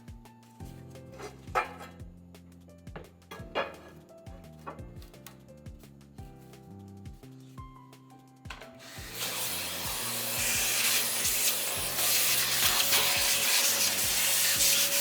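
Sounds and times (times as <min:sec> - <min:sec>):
background music with steady beat: 0:00.0 - 0:15.0
hissing scraping on a surface: 0:08.8 - 0:15.0.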